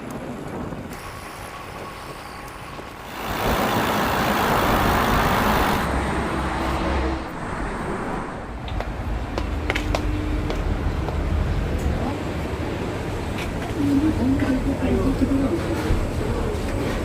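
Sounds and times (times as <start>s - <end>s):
motor vehicle passing by: 3.3s - 10.9s.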